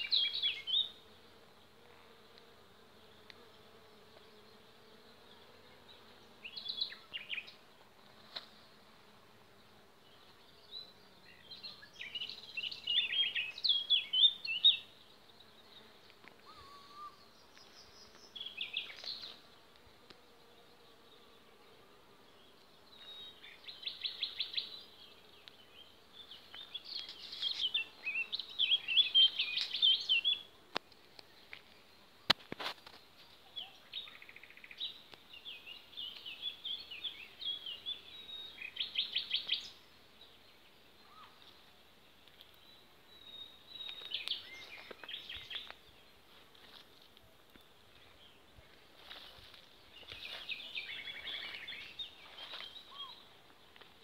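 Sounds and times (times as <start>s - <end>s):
songbird chirping and warbling: 0.0s - 1.0s, 10.0s - 19.4s, 22.3s - 30.5s, 33.0s - 41.6s, 48.0s - 53.8s.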